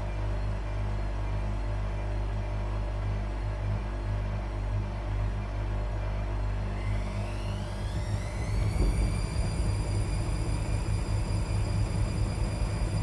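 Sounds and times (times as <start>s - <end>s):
washing machine spinning up: 6.0s - 13.0s.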